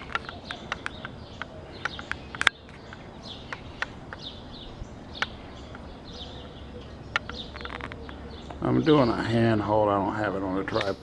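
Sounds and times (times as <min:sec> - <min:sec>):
small birds chirping: 0:00.0 - 0:11.0
sharp click: 0:10.8 - 0:11.0.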